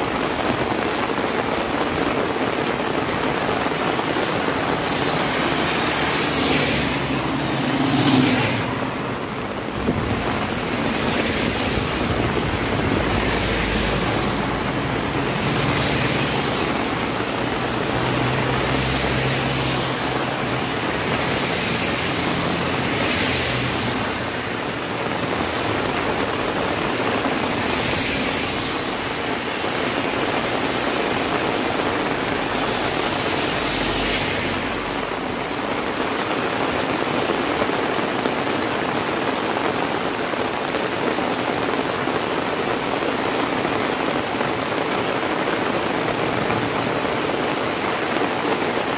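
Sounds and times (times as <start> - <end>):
heavy rain falling: 0.0 - 48.9
tyre hiss on wet road: 0.0 - 48.9
vehicle engine hum: 4.6 - 27.6.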